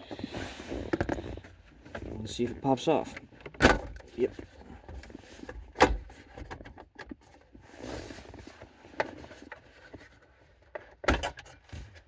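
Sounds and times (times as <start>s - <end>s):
rustling scrape: 7.6s - 10.2s.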